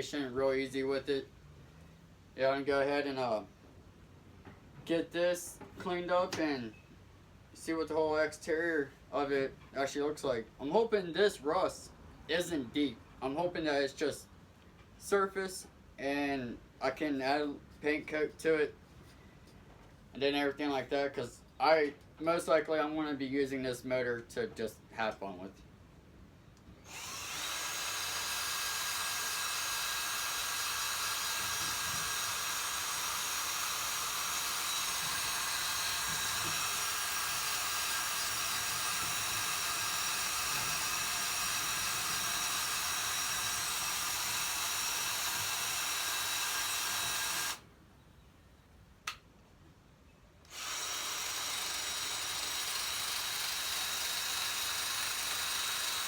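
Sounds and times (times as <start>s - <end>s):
electric drill running: 26.8s - 47.6s, 50.5s - 56.0s.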